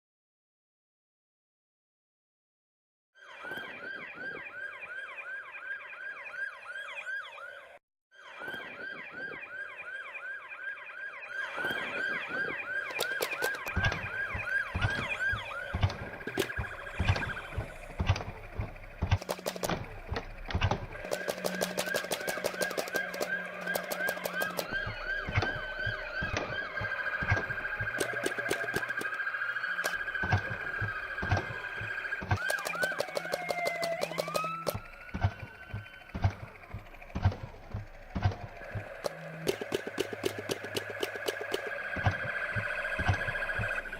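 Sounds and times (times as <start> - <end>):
police siren: 3.2 - 43.9
rapid sharp clicks: 12.9 - 29.2, 29.8 - 43.9.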